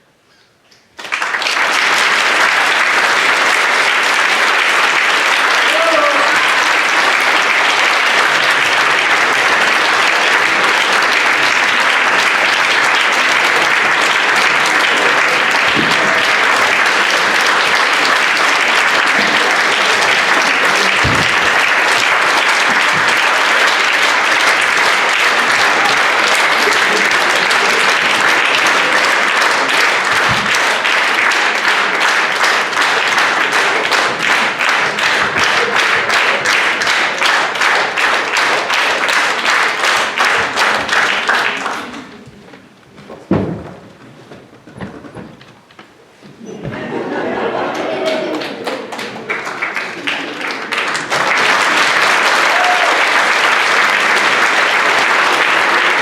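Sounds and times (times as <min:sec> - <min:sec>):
audience applauding: 0:00.9 - 0:42.6, 0:46.4 - 0:56.0.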